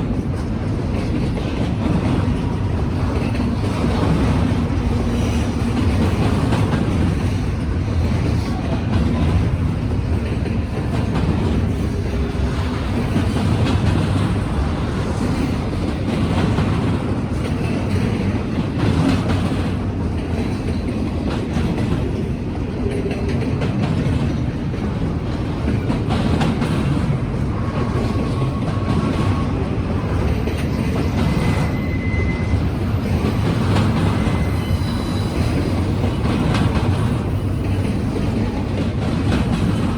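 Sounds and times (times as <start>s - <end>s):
freight train rumbling past: 0.0s - 39.9s
wheels clicking over rail joints: 32.6s - 39.9s.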